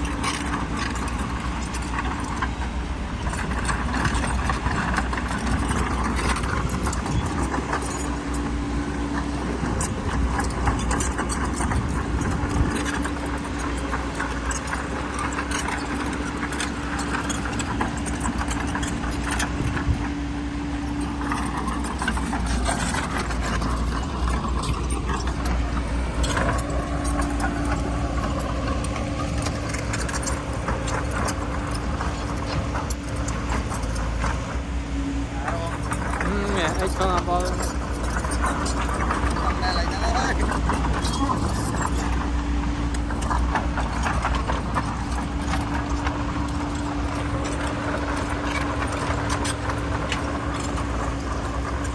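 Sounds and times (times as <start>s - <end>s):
bulldozer diesel engine whining: 0.0s - 51.9s
steel tracks clattering: 0.0s - 51.9s
rattling stone: 20.8s - 51.9s.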